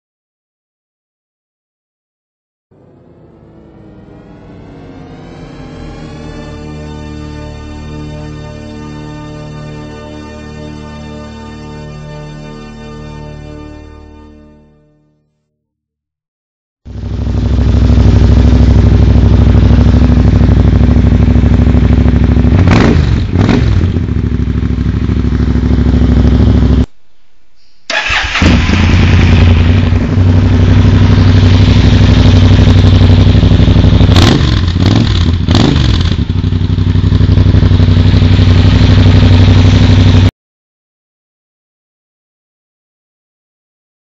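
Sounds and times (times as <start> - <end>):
motorcycle engine idling and revving: 2.8 - 7.0, 16.9 - 26.9, 27.9 - 40.3.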